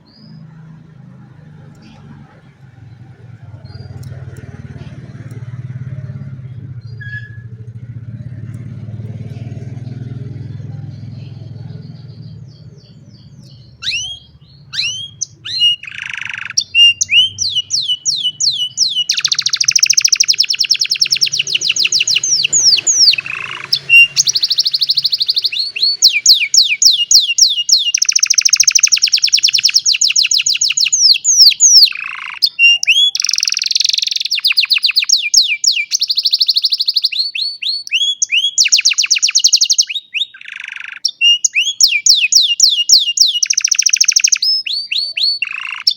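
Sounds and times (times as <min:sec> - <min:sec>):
canary singing trills: 0:00.0 - 0:45.9.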